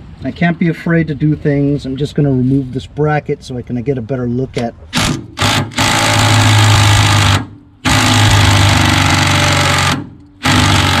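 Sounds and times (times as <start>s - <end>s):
impact driver hammering on bolt: 5.0s - 11.0s.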